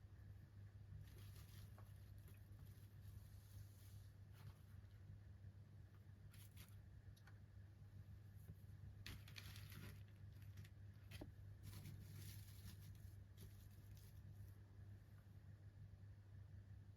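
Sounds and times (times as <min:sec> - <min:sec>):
steady low hum: 0:00.0 - 0:16.9
packaging rustling and crinkling: 0:09.1 - 0:14.1.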